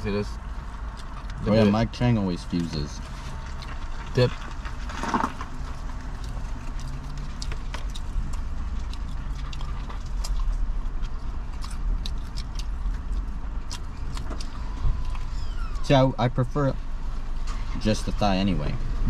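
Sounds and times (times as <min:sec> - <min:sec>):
steady low rumble: 0:00.0 - 0:19.0
chewing crunchy fried food: 0:00.8 - 0:01.7, 0:02.6 - 0:15.3.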